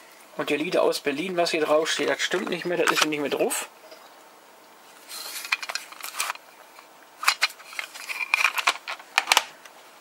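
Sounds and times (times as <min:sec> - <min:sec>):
plastic cassette cases rattling: 0:01.9 - 0:03.2, 0:05.4 - 0:06.4, 0:07.2 - 0:09.5.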